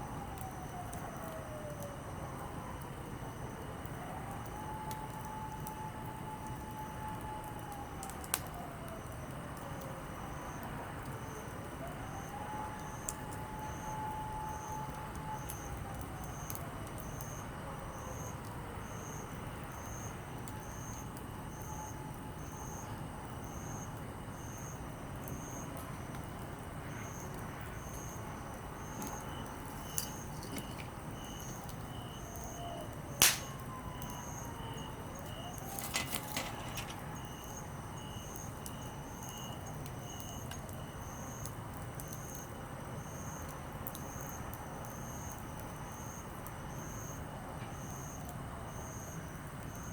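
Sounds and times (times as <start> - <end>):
campfire crackling: 0.0 - 47.5
fire popping: 2.5 - 17.4, 19.3 - 42.7
insects chirping: 26.8 - 41.4
faint distant sliding tone: 28.8 - 32.0, 35.3 - 37.4.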